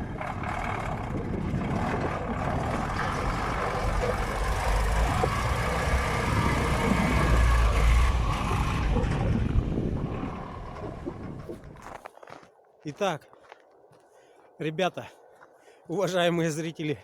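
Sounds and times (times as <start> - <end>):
truck engine under load: 0.0 - 11.9
wind buffeting microphone: 0.0 - 12.1.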